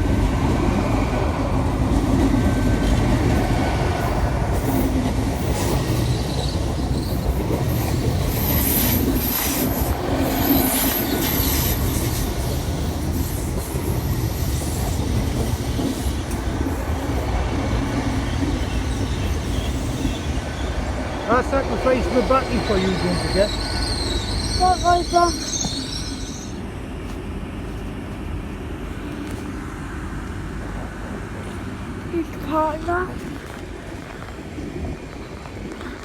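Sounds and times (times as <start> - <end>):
train wheels rumbling on rail: 0.0 - 36.0
wheels squealing: 17.8 - 26.6.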